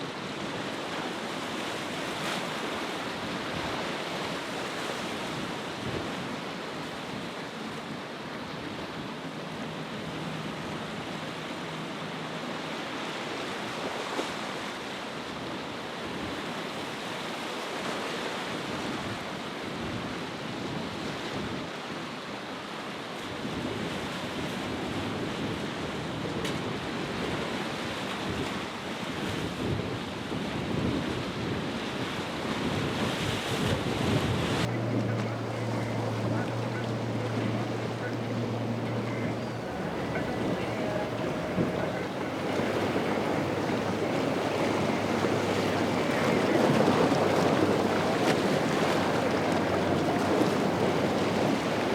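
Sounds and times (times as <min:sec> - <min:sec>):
ocean waves breaking: 0:00.0 - 0:51.9
wind buffeting microphone: 0:24.7 - 0:51.9.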